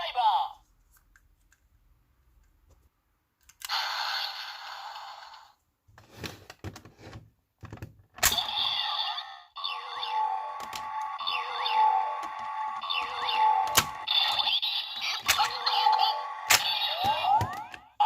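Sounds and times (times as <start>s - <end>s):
toy electronic sound effects: 3.7s - 5.5s, 8.3s - 18.0s.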